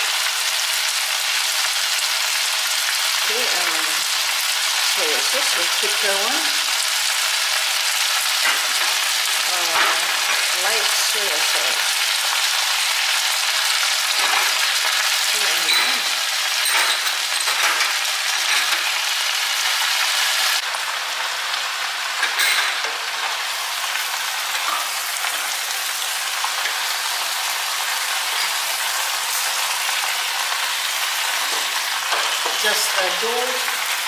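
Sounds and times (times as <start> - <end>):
vegetables sizzling in a pan: 0.0 - 34.0
spatula clinking and scraping pan: 22.2 - 23.4, 24.5 - 25.6, 28.1 - 29.7, 31.4 - 32.9.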